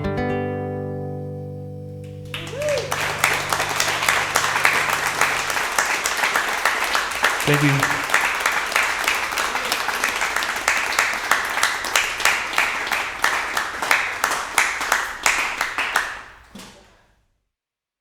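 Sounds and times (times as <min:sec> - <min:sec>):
audience applauding: 0:02.0 - 0:16.4
close sharp claps: 0:02.0 - 0:16.9.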